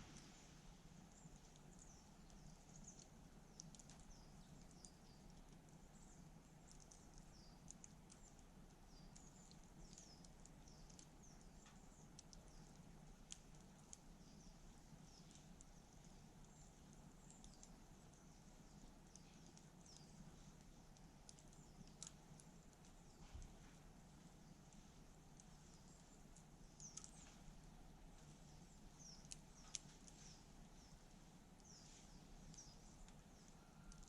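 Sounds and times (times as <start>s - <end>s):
campfire crackling: 0.0s - 34.0s
small birds chirping: 0.0s - 34.0s.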